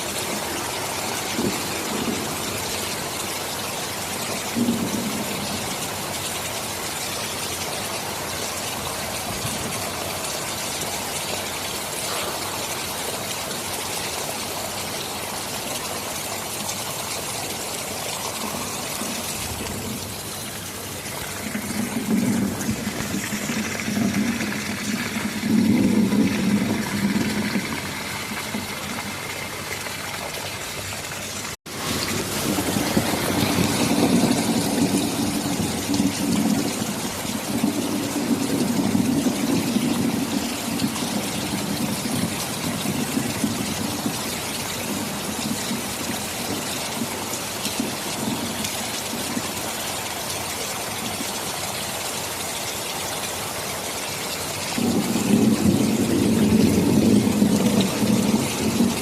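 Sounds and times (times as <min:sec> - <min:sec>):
thunder rumbling: 0:00.0 - 0:05.9, 0:17.9 - 0:29.9, 0:31.7 - 0:48.6, 0:54.8 - 0:59.0
heavy rain hissing: 0:00.0 - 0:59.0.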